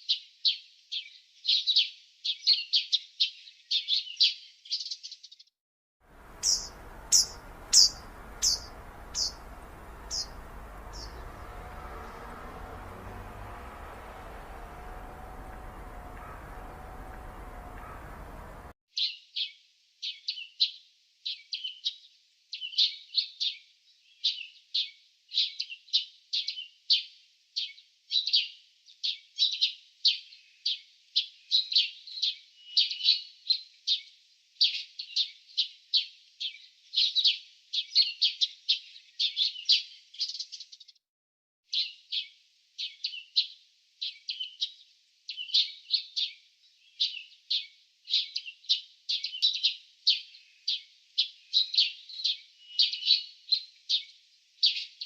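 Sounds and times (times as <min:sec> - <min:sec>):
small birds chirping: 0:00.0 - 0:05.5, 0:06.1 - 0:20.6, 0:34.0 - 0:41.0, 0:41.7 - 0:55.0.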